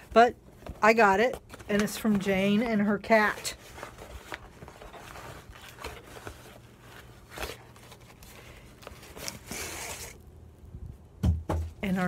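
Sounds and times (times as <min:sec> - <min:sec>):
packaging rustling and tearing: 0:01.2 - 0:10.2.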